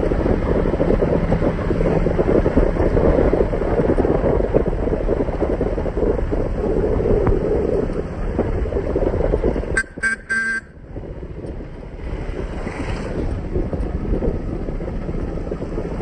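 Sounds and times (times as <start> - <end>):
motorcycle wind and road noise: 0.0 - 16.0
vehicle horn toots: 9.7 - 10.8.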